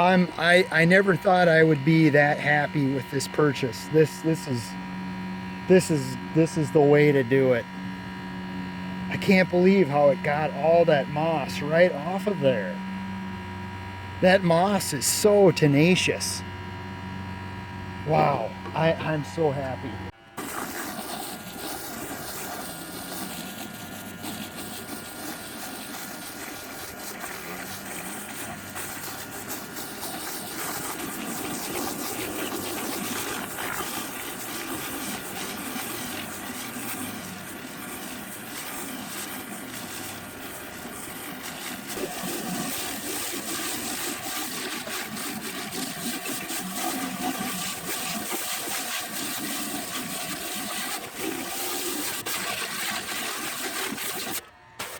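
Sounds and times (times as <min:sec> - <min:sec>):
pressure washer pump hum: 0:00.0 - 0:54.9
high-pressure water spraying: 0:20.4 - 0:54.9.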